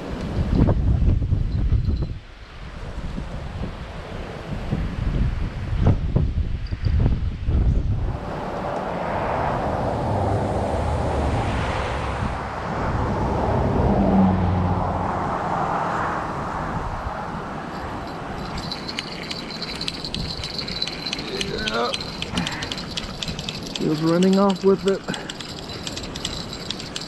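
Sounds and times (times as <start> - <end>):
wind noise on microphone: 0.0 - 15.4, 16.1 - 27.0
road traffic passing: 8.1 - 27.0
fast sharp clicks: 17.8 - 27.0.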